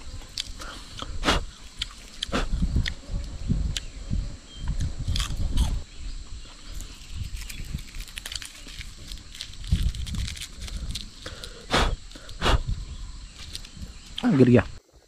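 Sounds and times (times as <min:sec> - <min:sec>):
wet chewing: 0:00.2 - 0:03.0, 0:06.7 - 0:12.8.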